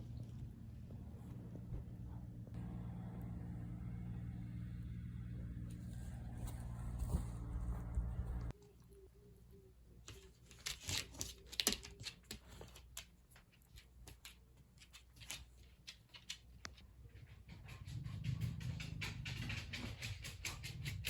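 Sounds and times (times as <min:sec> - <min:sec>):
dog footsteps clicking: 0:11.0 - 0:21.0.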